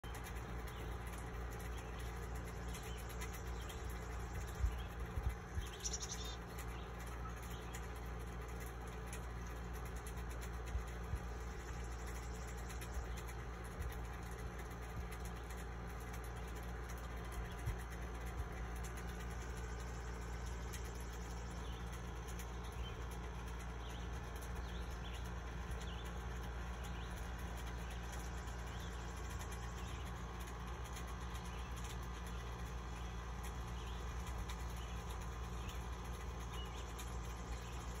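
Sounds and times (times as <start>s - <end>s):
low outdoor rumble: 0.0s - 38.0s
light ticks: 0.1s - 38.0s
bird chirps: 1.6s - 7.9s.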